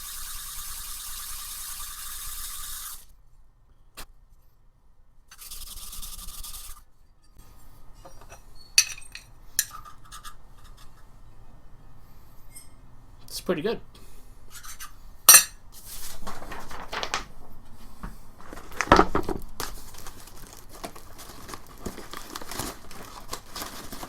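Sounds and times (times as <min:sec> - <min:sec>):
metal part clinking: 0:08.1 - 0:10.3, 0:15.3 - 0:15.6.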